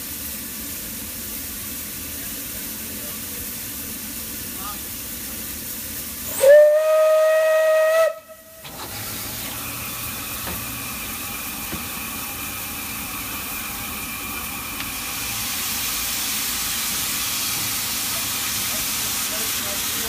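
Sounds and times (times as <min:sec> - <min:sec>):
steady steam hiss: 0:00.0 - 0:20.0
steam whistle blast: 0:06.3 - 0:08.9.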